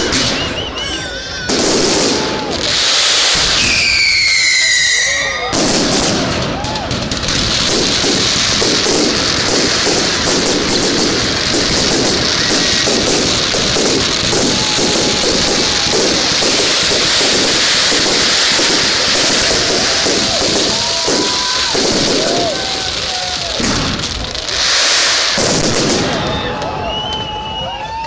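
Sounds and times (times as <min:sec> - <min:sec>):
fireworks crackling: 0:00.0 - 0:28.0.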